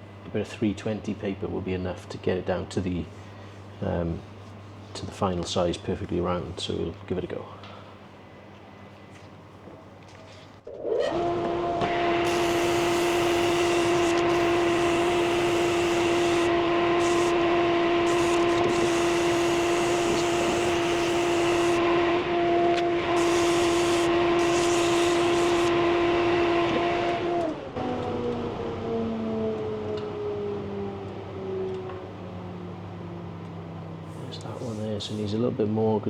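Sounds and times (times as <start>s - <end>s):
lathe motor whining: 10.8s - 32.7s
sandpaper hissing on spinning wood: 12.2s - 17.4s, 18.0s - 21.8s, 23.2s - 25.7s.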